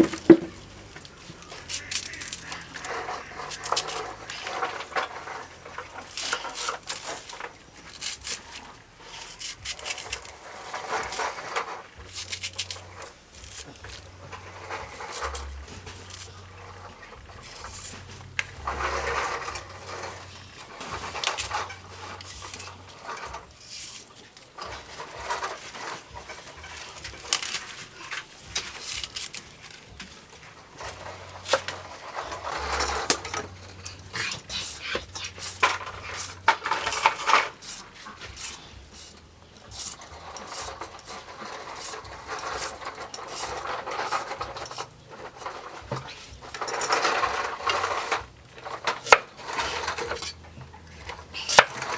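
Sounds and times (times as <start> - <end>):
utensils clicking against dishes: 0.0 - 51.9.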